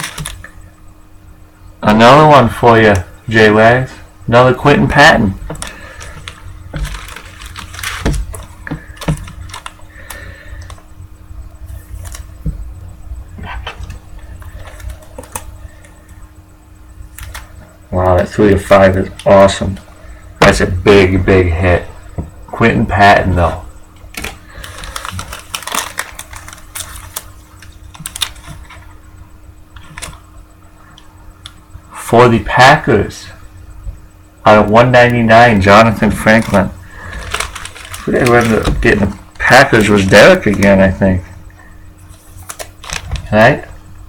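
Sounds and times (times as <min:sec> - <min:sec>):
cards rustling: 0:00.0 - 0:00.5, 0:05.3 - 0:10.9, 0:11.7 - 0:12.5, 0:13.6 - 0:16.2, 0:17.1 - 0:17.6, 0:24.1 - 0:28.9, 0:35.8 - 0:41.0, 0:42.0 - 0:43.4.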